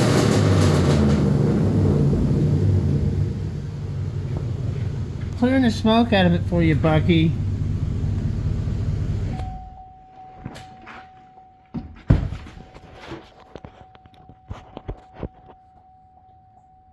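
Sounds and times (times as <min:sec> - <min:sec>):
truck engine idling: 0:00.0 - 0:09.8
knocks and thunks: 0:11.8 - 0:12.7.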